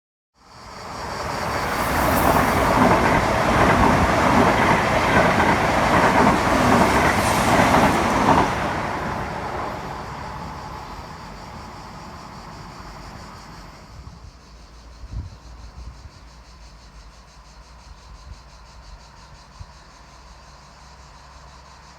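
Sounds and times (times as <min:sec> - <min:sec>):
train wheels rushing on rails: 0:00.5 - 0:14.8.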